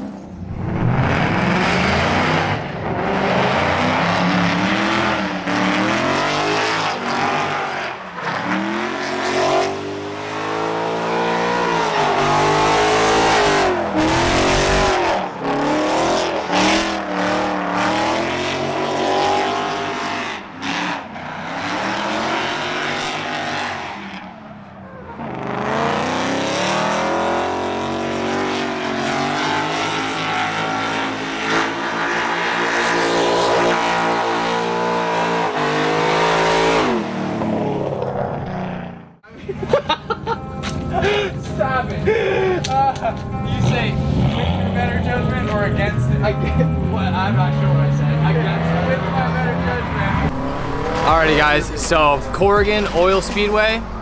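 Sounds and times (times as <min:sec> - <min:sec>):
car engine revving hard: 0:00.0 - 0:24.2, 0:25.2 - 0:54.0
tire squeal: 0:40.1 - 0:54.0.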